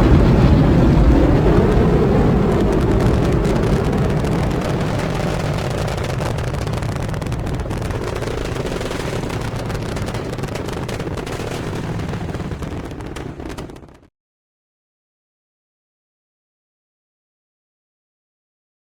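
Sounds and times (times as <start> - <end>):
rocket launch rumble: 0.0 - 14.1.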